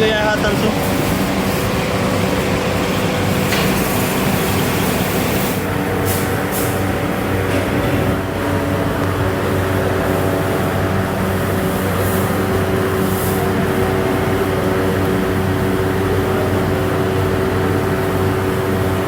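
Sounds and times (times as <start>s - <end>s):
machinery low drone: 0.0s - 19.0s.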